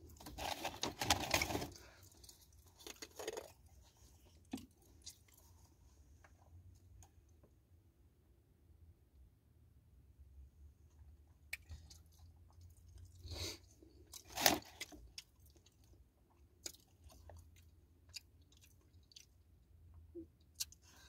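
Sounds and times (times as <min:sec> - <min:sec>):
person chewing a sandwich: 0:00.0 - 0:05.8, 0:11.3 - 0:21.0.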